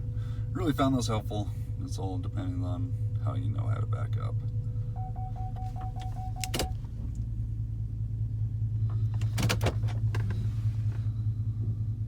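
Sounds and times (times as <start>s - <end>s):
truck engine idling: 0.0s - 12.0s
parking sensor beeping: 4.9s - 6.9s.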